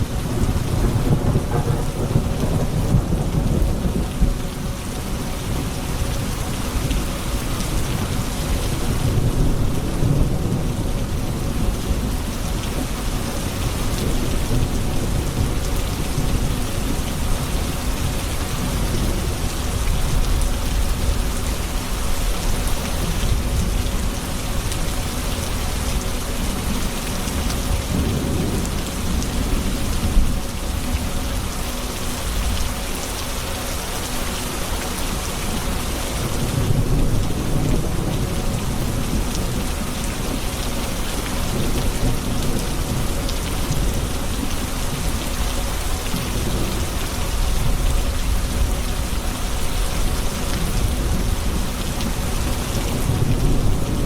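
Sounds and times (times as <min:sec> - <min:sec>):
steady rain falling: 0:00.0 - 0:54.0
deep rolling thunder: 0:00.2 - 0:04.7, 0:52.7 - 0:54.0.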